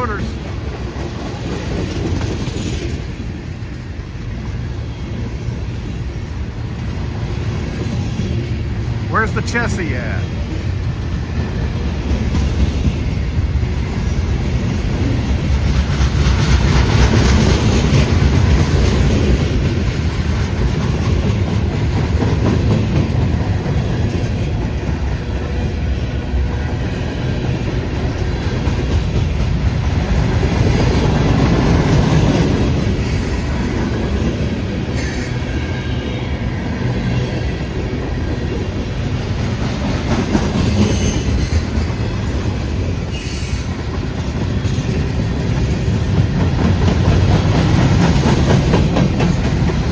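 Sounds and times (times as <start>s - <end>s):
freight train wheels rumbling: 0.0s - 49.9s
train wheel squeals: 32.8s - 33.8s, 34.9s - 37.8s, 40.4s - 42.0s, 43.0s - 44.0s.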